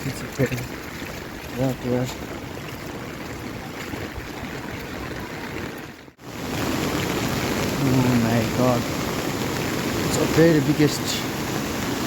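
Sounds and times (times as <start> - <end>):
rushing flowing water: 0.0 - 12.0.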